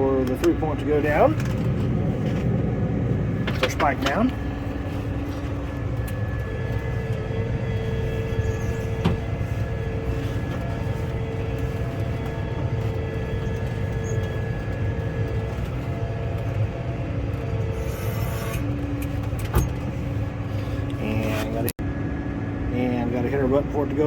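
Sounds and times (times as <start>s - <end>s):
tractor diesel engine running: 0.0s - 21.7s
high whine: 0.0s - 24.0s.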